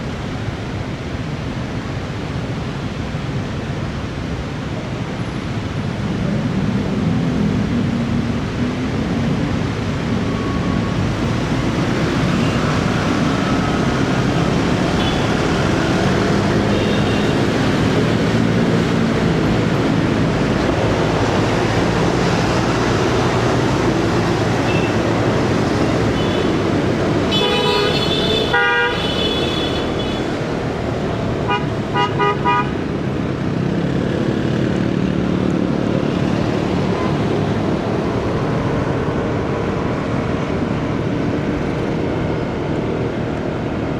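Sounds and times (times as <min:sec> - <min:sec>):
vehicle horn: 0:27.3 - 0:30.3, 0:31.5 - 0:32.8.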